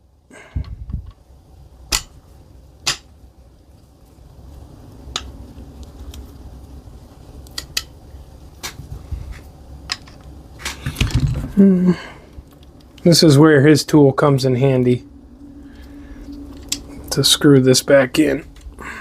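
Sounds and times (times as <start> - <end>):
rustle of handling: 3.4 - 13.4.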